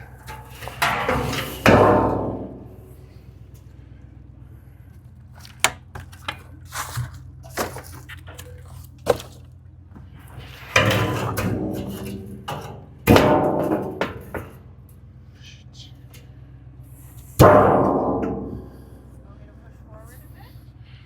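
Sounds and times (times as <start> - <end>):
loud metal grinding scrapes: 0.0 - 2.6
metal knocks and clunks: 0.0 - 3.7, 5.4 - 14.9, 17.2 - 19.0
low engine hum: 0.0 - 21.0.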